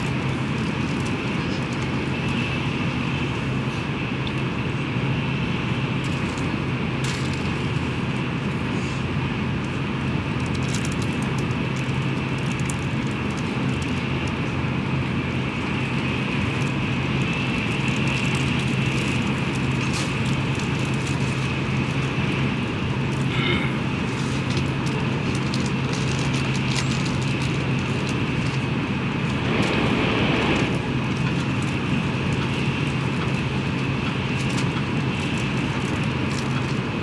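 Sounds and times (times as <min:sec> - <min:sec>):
train rolling noise: 0:00.0 - 0:37.0
train cabin hum: 0:27.4 - 0:34.3
rushing air: 0:28.6 - 0:32.8.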